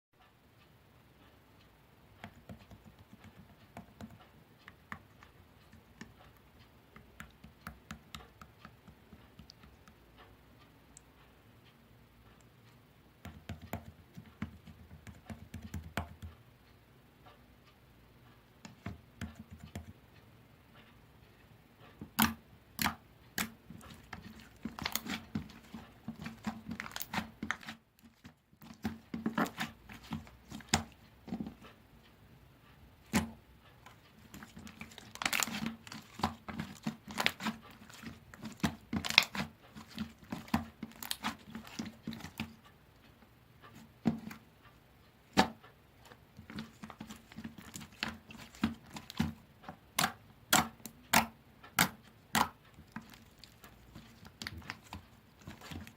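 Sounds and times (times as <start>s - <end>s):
slime popping and crackling: 22.2s - 27.8s, 34.2s - 42.5s.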